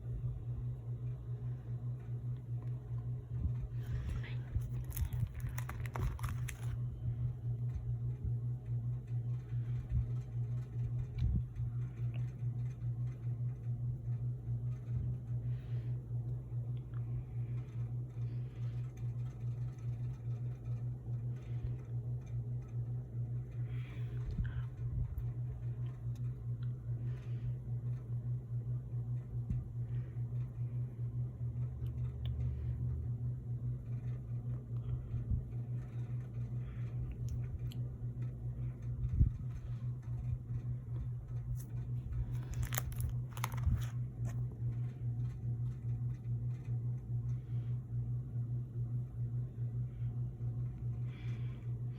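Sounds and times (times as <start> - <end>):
pulsing low machine hum: 0.0 - 51.9
soft handling rustles: 2.7 - 7.0, 39.3 - 45.4
crackles: 3.7 - 6.9, 41.3 - 45.4
plastic sleeves crinkling: 3.8 - 6.9, 41.4 - 44.8.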